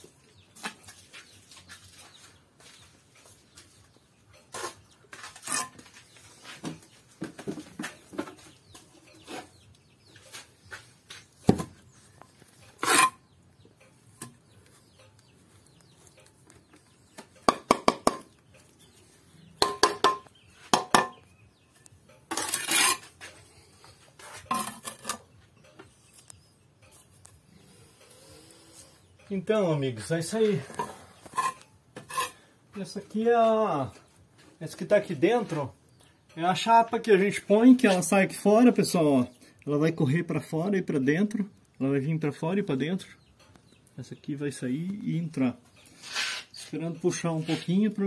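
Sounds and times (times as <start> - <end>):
tools scraping on mortar: 4.4 - 6.8, 12.2 - 13.4, 22.2 - 26.3, 30.6 - 32.5, 45.8 - 47.8
hand tools tapping on brick: 17.1 - 18.4, 19.6 - 21.3.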